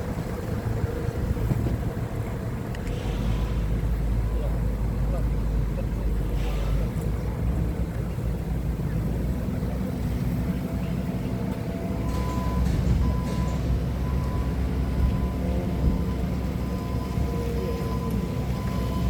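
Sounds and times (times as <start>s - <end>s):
forklift engine running: 0.0s - 19.0s
reversing alarm beeping: 11.4s - 19.0s.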